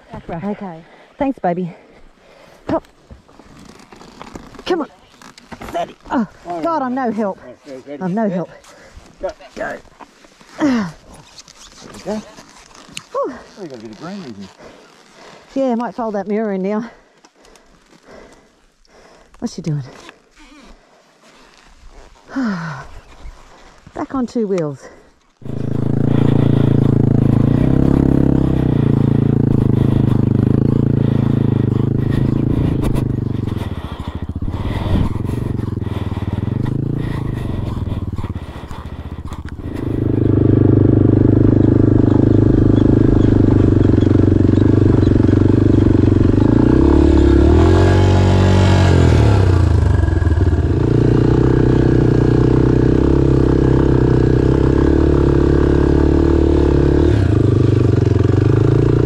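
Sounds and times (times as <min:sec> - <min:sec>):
motorcycle engine revving: 0:24.8 - 0:59.0.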